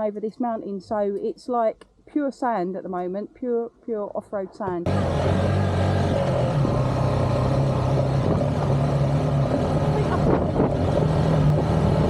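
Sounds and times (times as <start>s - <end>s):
motorcycle engine running steadily: 4.8s - 12.0s.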